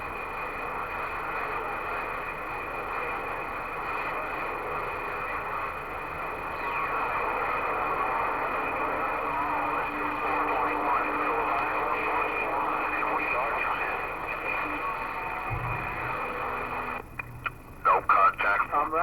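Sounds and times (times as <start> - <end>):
radio static hiss: 0.0 - 19.0
low steady tone: 14.7 - 17.6.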